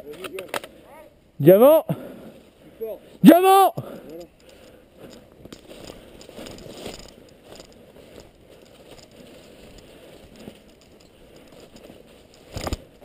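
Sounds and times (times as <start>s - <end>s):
faint rustling: 3.8s - 13.0s
light crackling: 3.9s - 13.0s.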